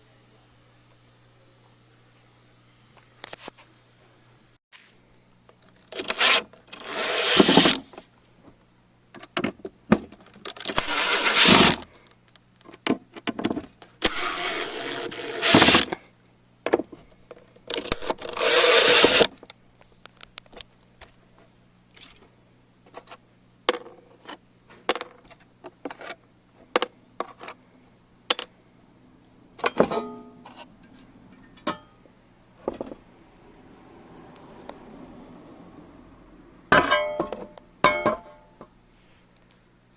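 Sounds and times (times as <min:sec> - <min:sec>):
clicks and clinks of hard parts: 0:10.1 - 0:11.8, 0:17.3 - 0:19.5, 0:36.7 - 0:38.5.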